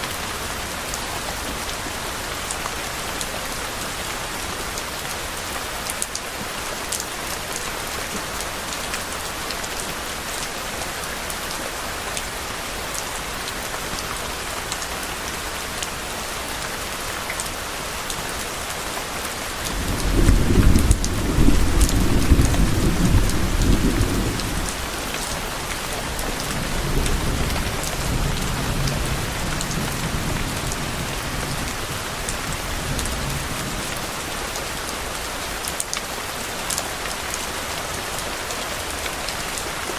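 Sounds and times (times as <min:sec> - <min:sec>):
steady rain falling: 0:00.0 - 0:39.9
thunder rumbling: 0:19.6 - 0:25.1.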